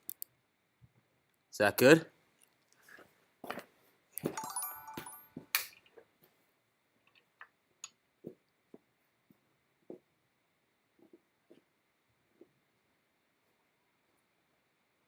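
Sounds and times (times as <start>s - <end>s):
bright chime-like ring: 4.3s - 5.6s.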